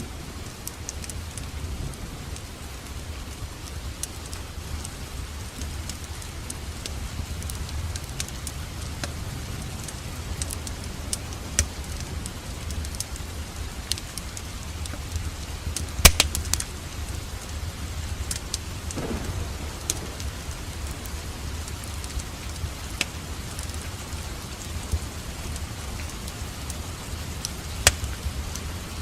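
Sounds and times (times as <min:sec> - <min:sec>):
steady rain: 0:00.0 - 0:29.0
wood fire crackling: 0:00.0 - 0:29.0
sharp pops of fire: 0:15.8 - 0:16.8, 0:18.3 - 0:23.8, 0:27.4 - 0:28.3.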